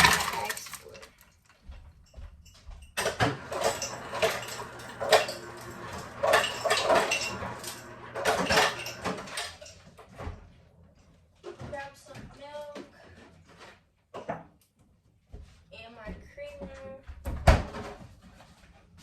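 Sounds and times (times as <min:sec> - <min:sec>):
ice cubes clinking into glass jar: 0:00.0 - 0:01.2, 0:03.0 - 0:09.7.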